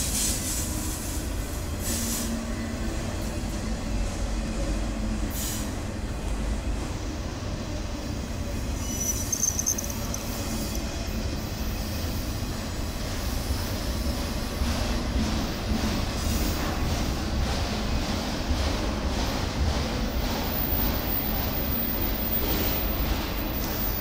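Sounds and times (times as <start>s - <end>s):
steel wheels rumbling on rail: 0.0s - 24.0s
high wheel squeal: 8.7s - 11.0s.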